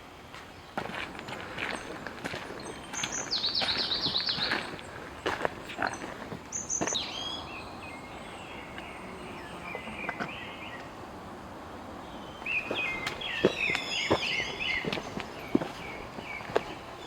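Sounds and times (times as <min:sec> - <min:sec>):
songbirds chirping: 0:00.0 - 0:17.0
footsteps on forest trail: 0:00.2 - 0:08.9, 0:12.2 - 0:17.0.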